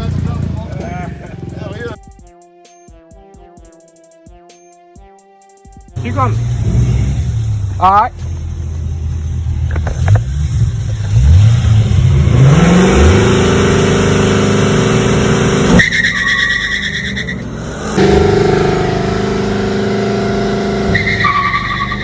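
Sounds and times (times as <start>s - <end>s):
car engine revving: 0.0s - 2.0s, 6.0s - 22.0s
high squeal: 15.8s - 18.0s, 20.8s - 22.0s.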